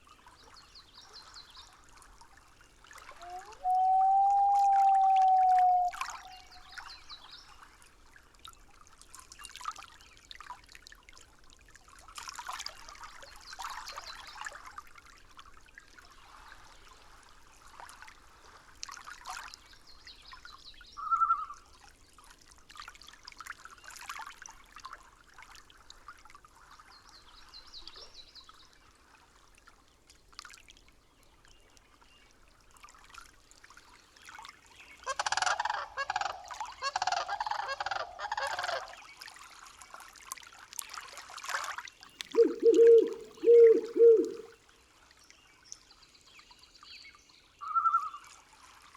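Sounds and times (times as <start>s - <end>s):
water trickling: 42.2s - 44.5s.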